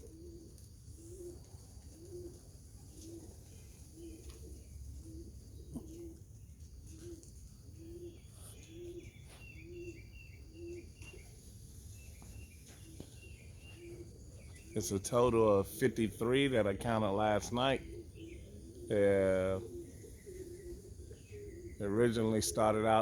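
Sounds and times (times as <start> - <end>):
pigeon cooing: 0.0 - 23.0
small birds chirping: 0.0 - 23.0.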